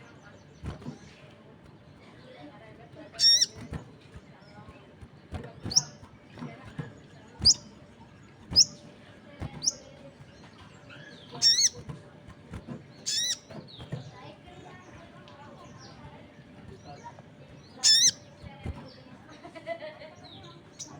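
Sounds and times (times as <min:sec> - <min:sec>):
songbird chirps sweeping down: 0:03.2 - 0:03.8, 0:05.3 - 0:06.1, 0:07.3 - 0:11.9, 0:12.9 - 0:19.1.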